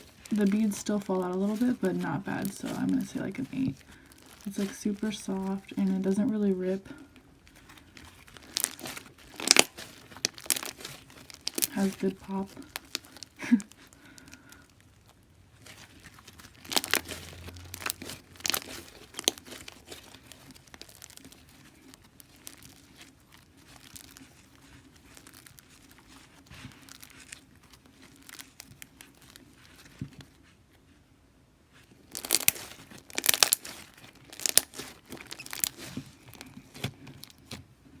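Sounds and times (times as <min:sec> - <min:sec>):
bead slime crackling pops: 0:08.0 - 0:13.4, 0:15.6 - 0:26.0, 0:32.1 - 0:37.6.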